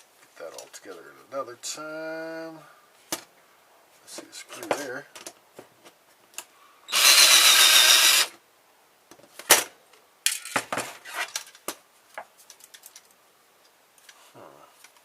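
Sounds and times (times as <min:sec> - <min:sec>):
electric screwdriver running: 0:06.9 - 0:08.4.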